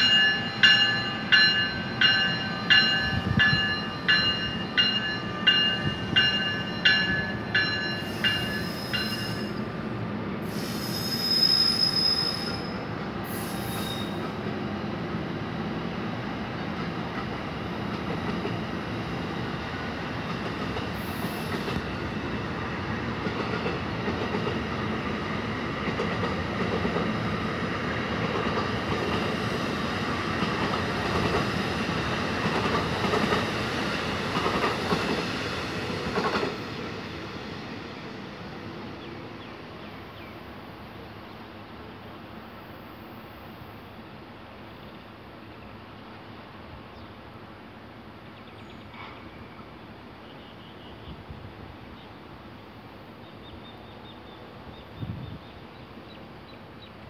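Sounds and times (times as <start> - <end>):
train bell ringing: 0.0 - 9.7
train coaches rumbling past: 0.0 - 57.0
wheel squeal: 10.6 - 12.8.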